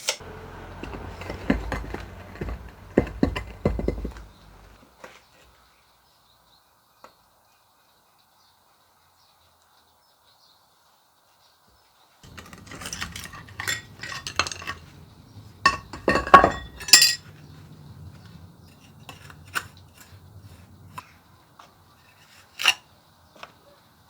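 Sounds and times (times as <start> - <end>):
metal pieces clanking: 0.8 - 4.8, 12.2 - 17.3.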